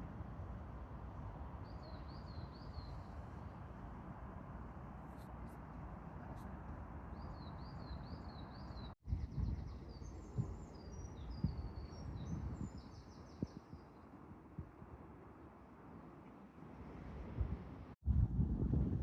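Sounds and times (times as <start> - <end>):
outdoor background noise: 0.0 - 19.0
songbirds chirping: 1.6 - 3.7, 7.1 - 14.1
wind thumps on microphone: 17.2 - 19.0.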